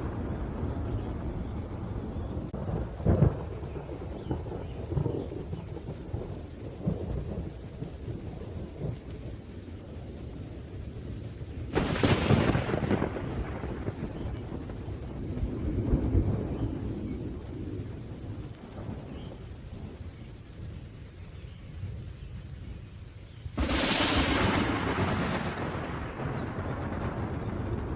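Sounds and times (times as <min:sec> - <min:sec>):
loud thunderclap: 0:00.0 - 0:09.0, 0:11.7 - 0:19.2, 0:23.5 - 0:27.9
low rumbling thunder: 0:00.0 - 0:27.9
steady rain: 0:00.0 - 0:27.9.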